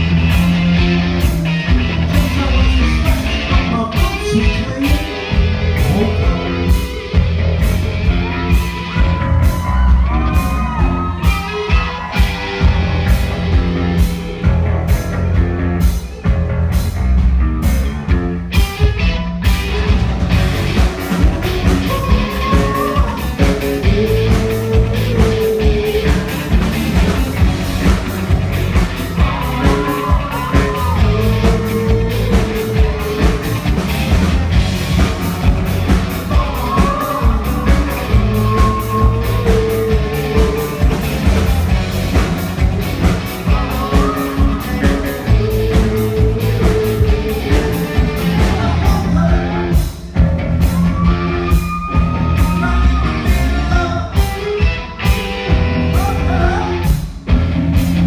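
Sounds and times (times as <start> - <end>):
drum-kit beat: 0.0 - 58.0
guitar and bass: 0.0 - 58.0
person singing: 2.0 - 7.1, 21.0 - 49.9, 51.0 - 55.2, 55.8 - 57.0.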